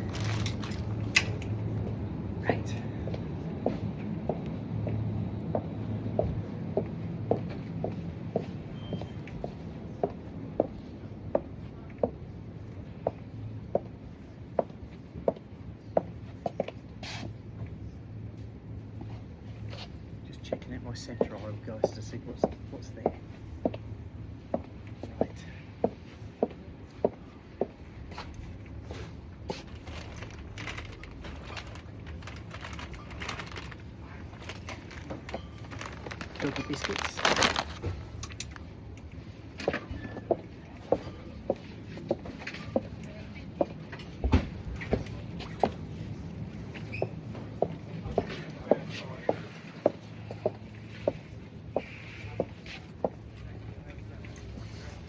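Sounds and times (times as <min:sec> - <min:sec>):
crinkling rustling: 0:00.0 - 0:01.0, 0:29.6 - 0:38.6
low steady hum: 0:00.0 - 0:55.0
heeled boots clicking on hard floor: 0:03.6 - 0:12.2.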